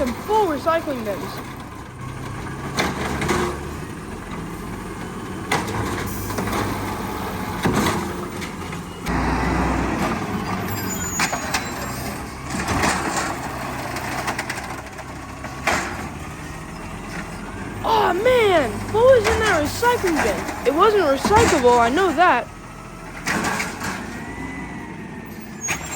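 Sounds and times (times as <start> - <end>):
garbage truck engine running: 0.0 - 25.9
bins clanking: 10.6 - 22.5
bins rattling: 18.0 - 22.4.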